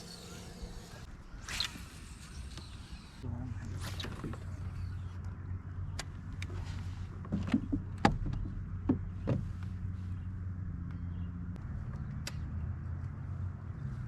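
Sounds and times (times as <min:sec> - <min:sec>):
boat motor humming: 0:00.0 - 0:11.6
knocks and clicks of gear: 0:07.2 - 0:09.8.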